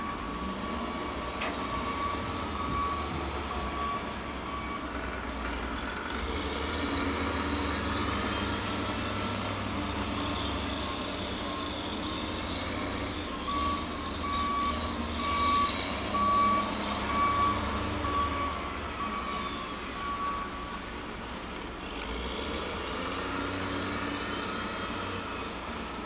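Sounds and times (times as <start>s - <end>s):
heavy diesel machinery rumbling: 0.0s - 26.0s
back-up alarm beeping: 13.2s - 20.8s.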